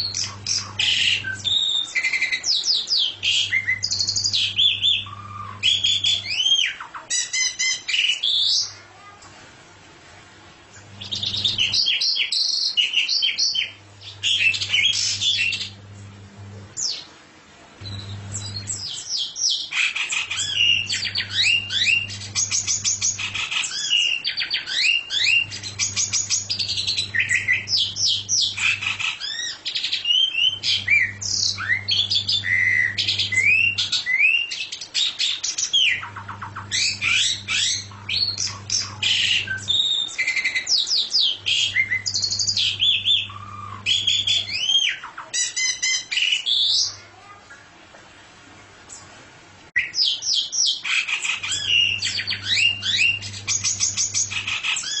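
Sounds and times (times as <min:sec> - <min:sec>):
songbird singing: 0:00.0 - 0:08.8, 0:17.8 - 0:47.0, 0:49.8 - 0:55.0
low hum: 0:13.9 - 0:16.8, 0:17.8 - 0:18.9, 0:25.4 - 0:29.0, 0:30.5 - 0:33.8, 0:36.0 - 0:39.8.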